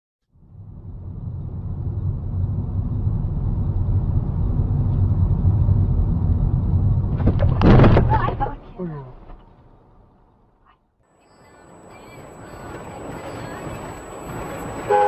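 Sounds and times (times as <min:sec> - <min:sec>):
car engine and road noise: 0:00.2 - 0:15.0.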